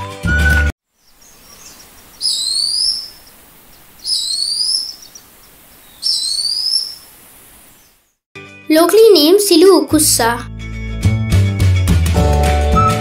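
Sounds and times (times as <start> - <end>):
faint hiss: 0.9 - 8.2
hawk shrill whistled calls: 2.1 - 3.3, 4.0 - 5.2, 5.8 - 7.1.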